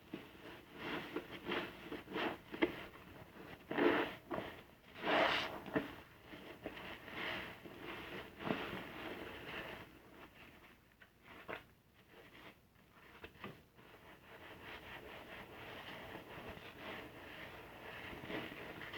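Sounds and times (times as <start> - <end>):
sponge squishing and scrubbing: 5.0 - 7.5.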